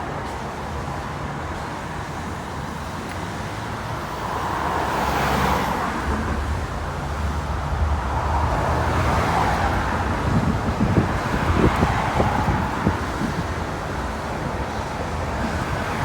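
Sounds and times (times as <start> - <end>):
wind buffeting microphone: 5.9 - 16.0.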